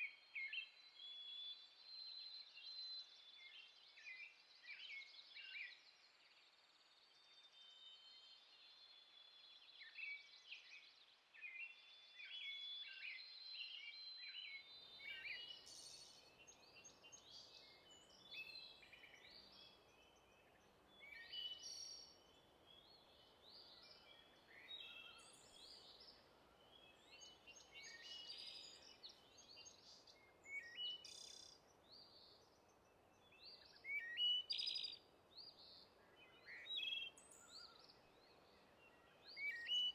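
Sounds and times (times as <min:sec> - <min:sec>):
faint steady hiss: 0:01.1 - 0:39.9
songbirds chirping and singing: 0:11.7 - 0:39.9.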